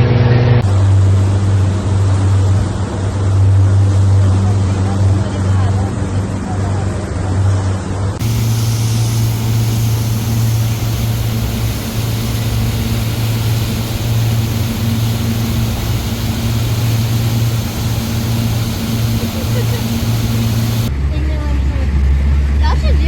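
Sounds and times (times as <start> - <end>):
boat motor humming: 0.6 - 5.2, 8.2 - 20.9.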